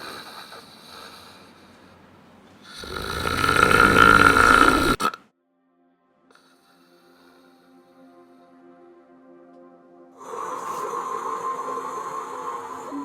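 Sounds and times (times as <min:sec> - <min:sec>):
person snoring: 0:00.0 - 0:01.6, 0:02.6 - 0:05.2, 0:10.2 - 0:13.0.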